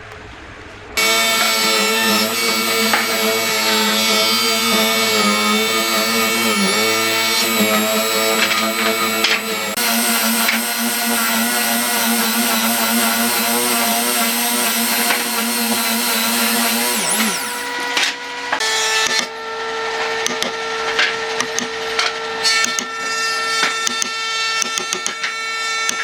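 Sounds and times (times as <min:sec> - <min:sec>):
higher-pitched motor tone: 0:01.0 - 0:17.9
power tool motor running: 0:01.0 - 0:18.7
knocks of wood being worked: 0:01.0 - 0:19.4, 0:20.0 - 0:26.0.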